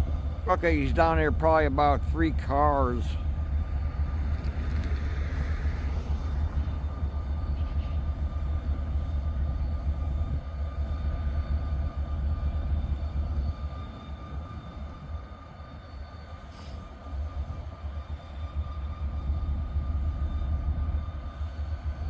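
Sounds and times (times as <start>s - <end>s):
engine idling rumble: 0.0s - 15.2s
faint steady whine: 0.0s - 22.0s.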